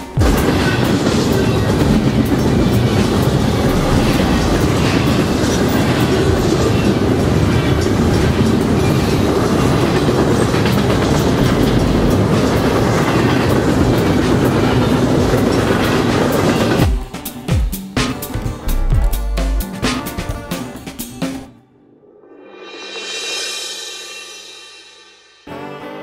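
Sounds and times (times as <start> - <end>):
train wheels rumbling on rails: 0.0 - 18.9.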